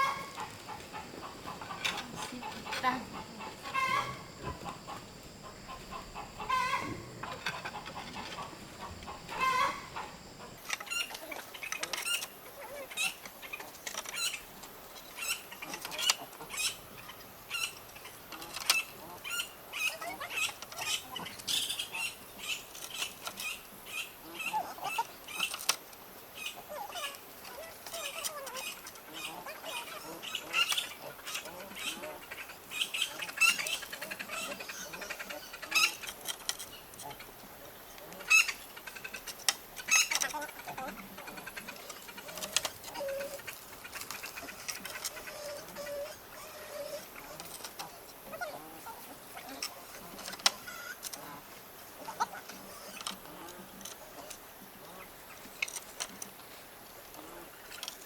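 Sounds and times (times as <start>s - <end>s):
high insect drone: 0.0s - 13.2s
chickens clucking: 0.0s - 58.0s.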